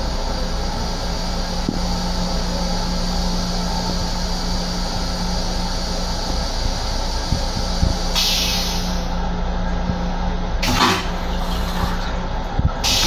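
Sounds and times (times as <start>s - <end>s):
electric train rumble and hum: 0.0s - 13.0s
short hiss: 7.6s - 9.1s.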